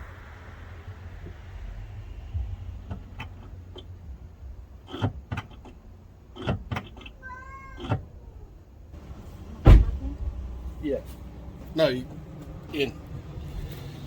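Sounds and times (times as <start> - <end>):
knocks and clunks: 2.3 - 8.2, 9.0 - 10.6.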